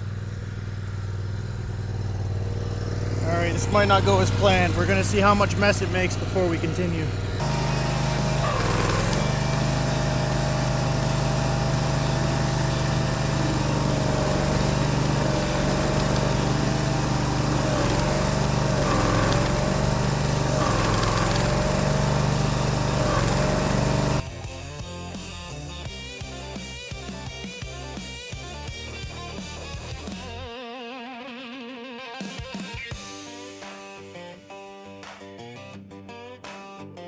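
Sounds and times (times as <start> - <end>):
stump grinder grinding: 0.0 - 24.2.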